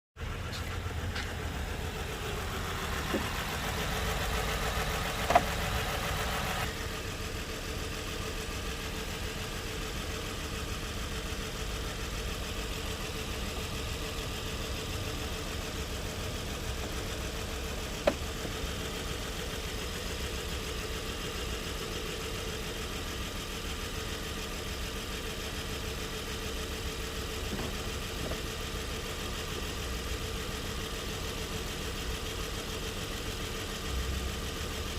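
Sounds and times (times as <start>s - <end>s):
car engine idling: 0.2s - 34.9s.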